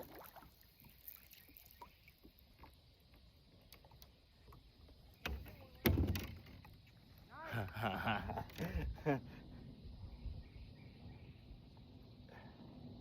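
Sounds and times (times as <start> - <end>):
tapping and handling in kayak: 2.5 - 7.0.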